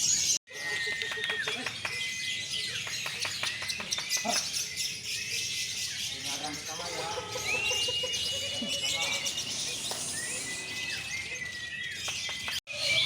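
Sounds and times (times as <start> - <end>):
caged songbirds singing: 0.0 - 13.0
people talking: 0.6 - 1.9, 6.1 - 10.4.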